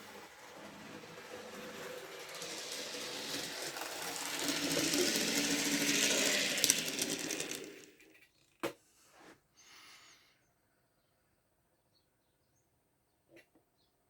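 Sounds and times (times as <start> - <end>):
wheels rattling on track: 0.0 - 8.2
model train motor buzzing: 0.0 - 8.6.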